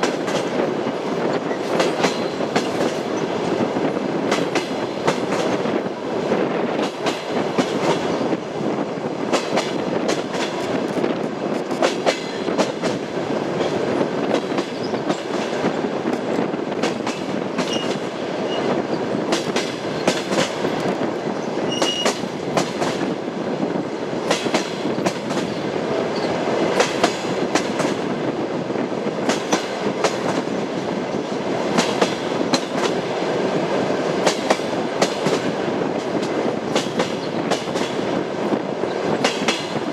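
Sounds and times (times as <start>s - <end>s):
train wheels clattering on rails: 0.0s - 39.9s
high wheel squeaks: 17.6s - 19.1s, 21.6s - 22.2s.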